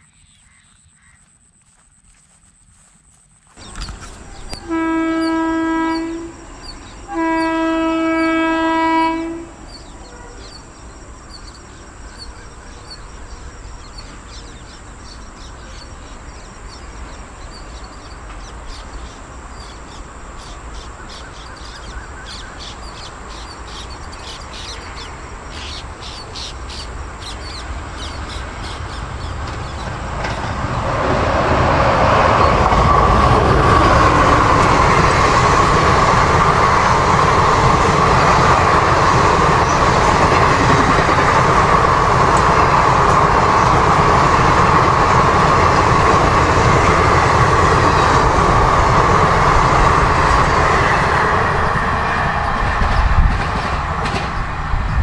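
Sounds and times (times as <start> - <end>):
express train rushing past: 3.6 - 55.0
locomotive horn blast: 4.3 - 10.5.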